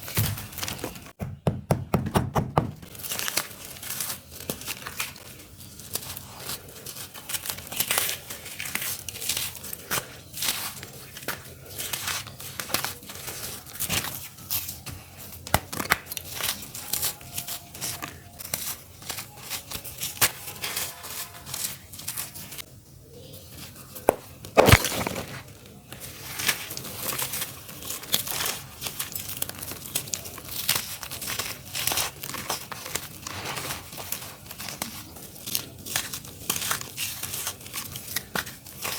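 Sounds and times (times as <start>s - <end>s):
dry dirt crumbling: 24.1s - 26.7s.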